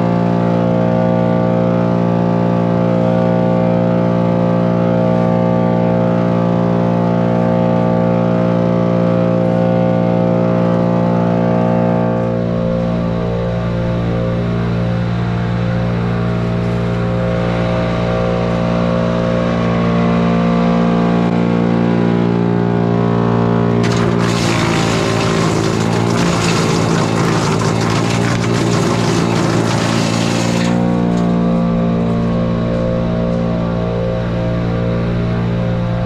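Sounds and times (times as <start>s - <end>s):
wood chipper engine running: 22.2s - 34.3s
wood being chipped: 23.8s - 31.3s.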